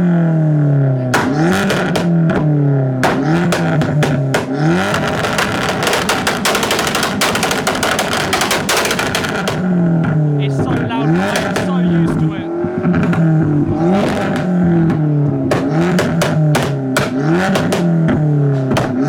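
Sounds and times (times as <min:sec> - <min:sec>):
car engine revving: 0:00.0 - 0:19.0
engine crackling: 0:00.1 - 0:19.0.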